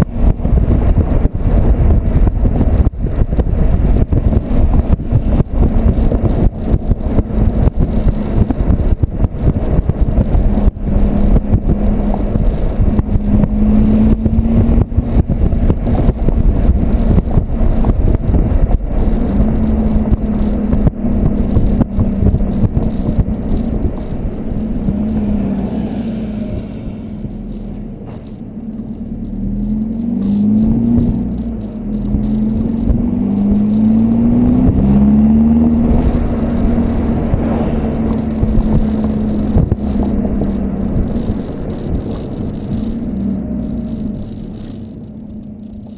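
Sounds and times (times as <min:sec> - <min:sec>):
wind buffeting microphone: 0:00.0 - 0:28.3, 0:29.6 - 0:43.5
car exhaust droning: 0:00.0 - 0:45.9.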